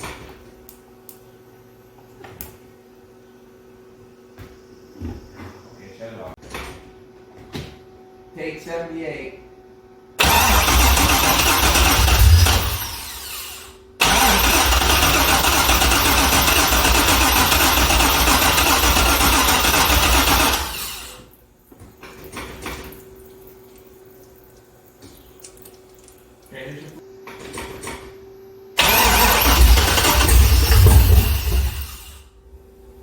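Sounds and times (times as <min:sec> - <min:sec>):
car engine cranking on starter: 0:10.2 - 0:21.2, 0:28.8 - 0:32.3.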